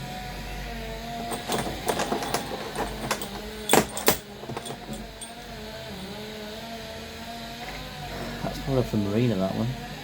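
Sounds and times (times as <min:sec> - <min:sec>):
metal bolts clicking: 0:01.3 - 0:05.4.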